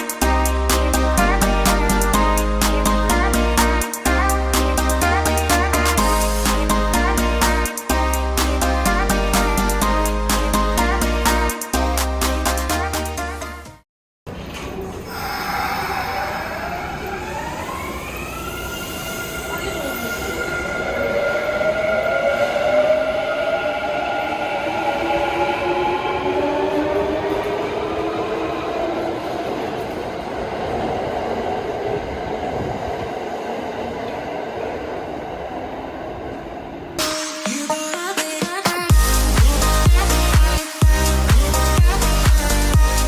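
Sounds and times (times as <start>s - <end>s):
background music: 0.0s - 13.8s, 37.0s - 43.0s
electric train motor whine: 15.2s - 21.9s.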